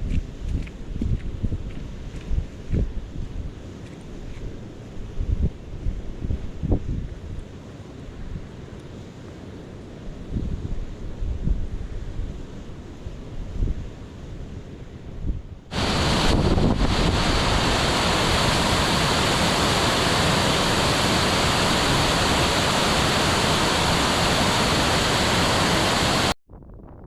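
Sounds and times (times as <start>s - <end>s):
wind buffeting microphone: 0.0s - 4.4s, 5.0s - 7.4s, 15.2s - 27.0s.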